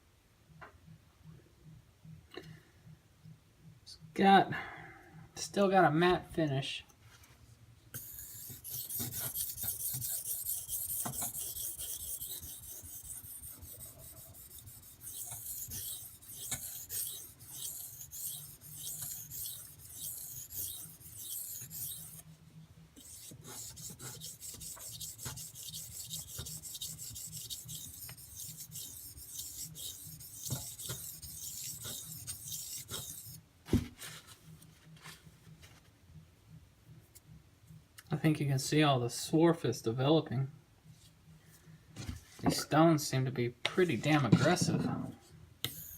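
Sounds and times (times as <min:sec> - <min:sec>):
knife scraping on whetstone: 0:08.0 - 0:22.2, 0:23.0 - 0:33.4, 0:45.7 - 0:45.9.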